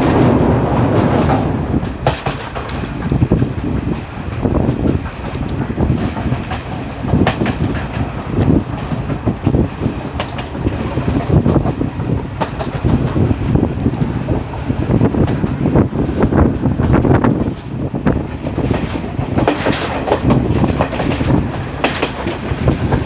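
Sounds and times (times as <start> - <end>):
train rumbling on rails: 0.0 - 23.0
wheels knocking over rail joints: 0.0 - 23.0
high wheel squeal: 6.7 - 13.2.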